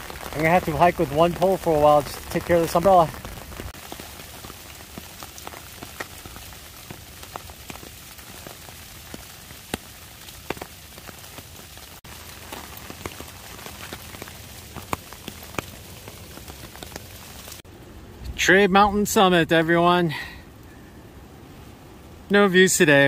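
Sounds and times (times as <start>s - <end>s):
large raindrops tapping: 0.0s - 17.8s
heavy rain in woodland: 0.0s - 23.0s.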